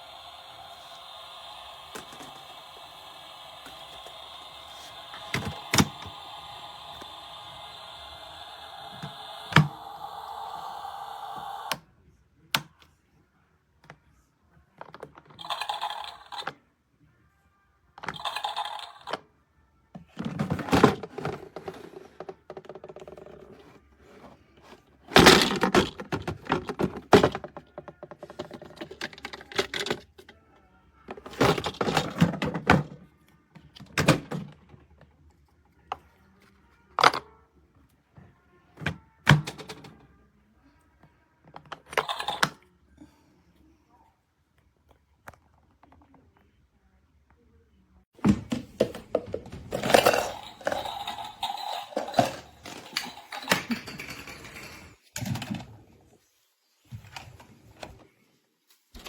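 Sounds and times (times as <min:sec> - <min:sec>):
toy electronic sound effects: 0:00.0 - 0:11.8, 0:18.1 - 0:19.2, 0:49.8 - 0:53.5.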